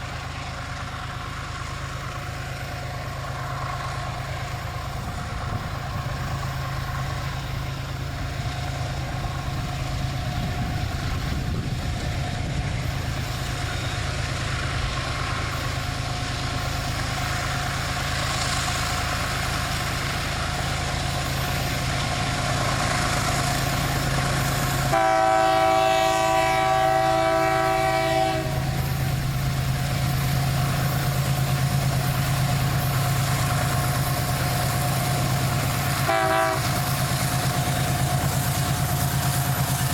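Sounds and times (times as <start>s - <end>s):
diesel locomotive running: 0.0s - 39.9s
locomotive horn long blast: 24.6s - 29.0s, 35.9s - 37.0s.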